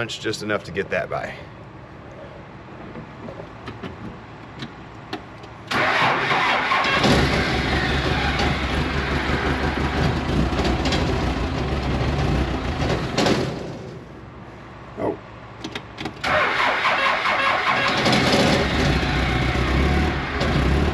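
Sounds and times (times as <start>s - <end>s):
engine starter cranking: 5.6s - 11.2s, 15.6s - 20.9s
vehicle engine running: 7.0s - 13.3s.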